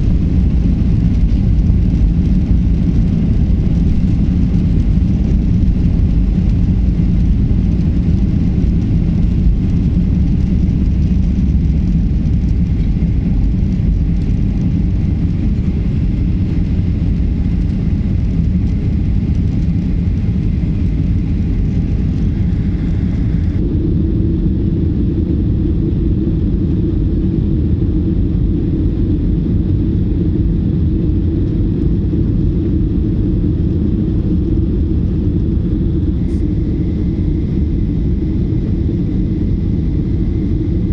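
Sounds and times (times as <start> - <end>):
jet engines roaring on takeoff: 0.0 - 40.9.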